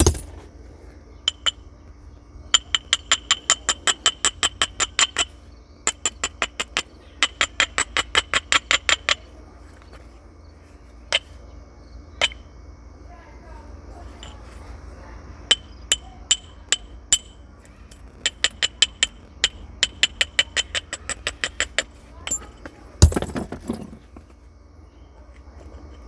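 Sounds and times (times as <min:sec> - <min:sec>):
stone tool striking flint: 0:00.0 - 0:00.3.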